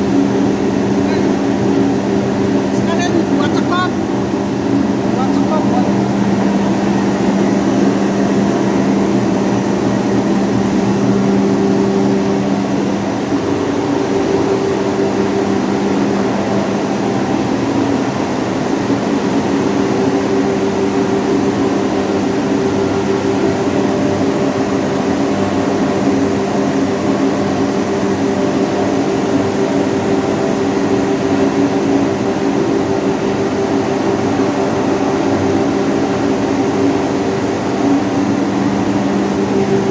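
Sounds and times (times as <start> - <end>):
hammer mill droning: 0.0 - 18.4.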